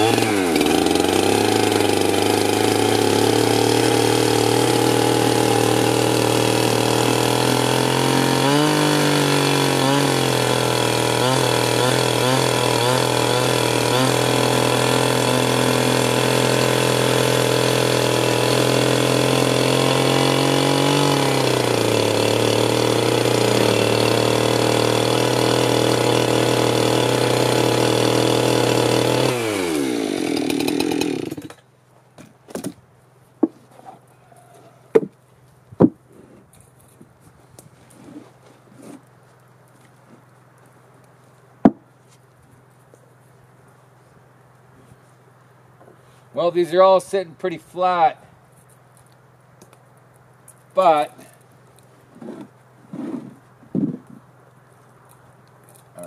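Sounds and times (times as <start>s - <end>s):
chainsaw engine cutting wood: 0.0s - 32.8s, 33.4s - 35.2s, 35.8s - 37.0s, 50.5s - 54.3s
sharp knocks: 34.9s - 35.2s, 35.8s - 36.0s, 41.6s - 41.8s.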